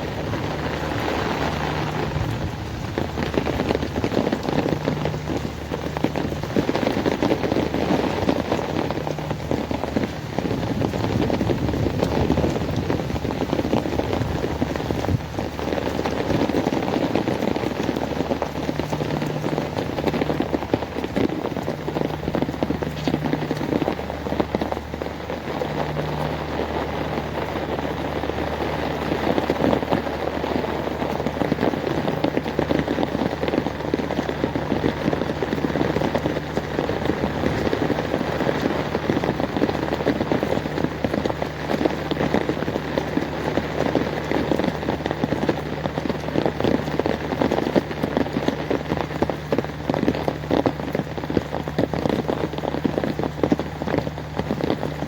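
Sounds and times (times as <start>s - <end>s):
heavy rain on hard surfaces: 0.0s - 55.0s.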